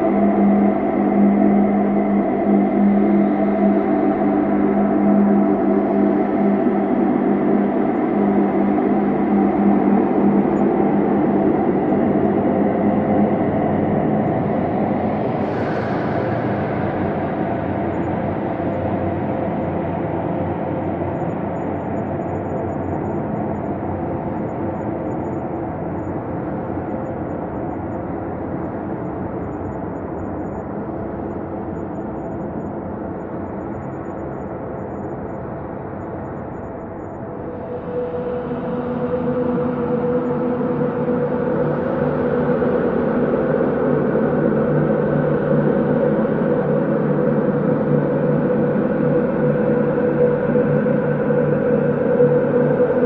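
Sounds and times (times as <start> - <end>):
synthesized drone: 26.1 - 53.0.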